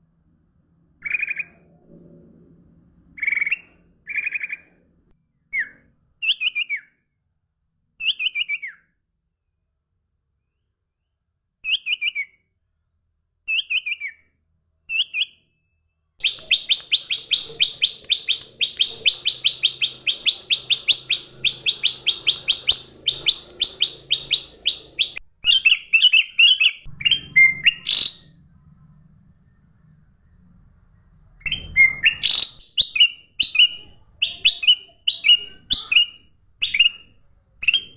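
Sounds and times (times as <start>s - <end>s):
songbird trilling: 16.2s - 28.3s, 31.4s - 37.9s.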